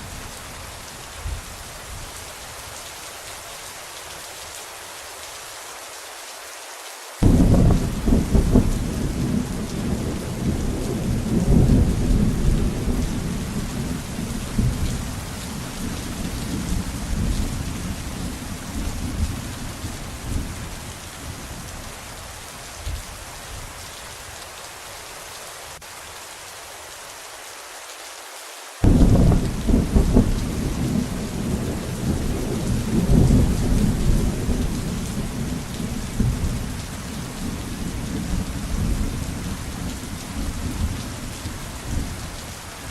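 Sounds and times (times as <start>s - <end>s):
heavy rain: 0.0s - 42.9s
deep rolling thunder: 7.2s - 20.7s, 28.8s - 42.2s.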